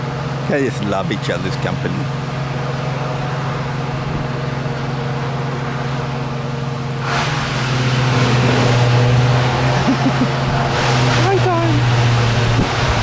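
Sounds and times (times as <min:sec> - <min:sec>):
low mechanical hum: 0:00.0 - 0:13.0
rushing noise: 0:02.8 - 0:13.0.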